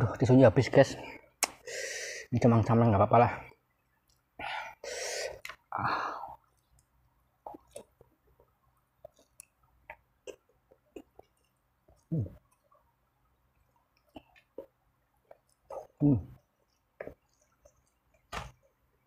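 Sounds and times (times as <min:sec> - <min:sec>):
wet chewing and mouth smacks: 0:06.4 - 0:12.9, 0:13.5 - 0:18.3.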